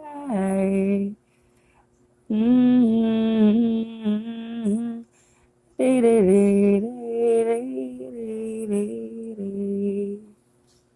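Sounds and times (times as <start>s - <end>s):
person singing wordless notes: 2.3s - 5.0s, 5.8s - 10.3s.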